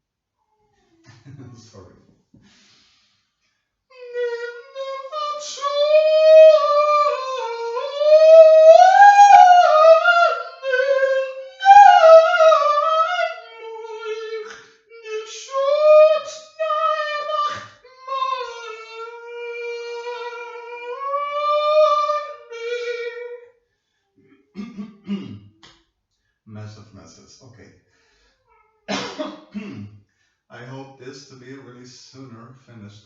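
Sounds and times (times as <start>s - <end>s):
high voice singing unaccompanied: 3.9s - 23.4s.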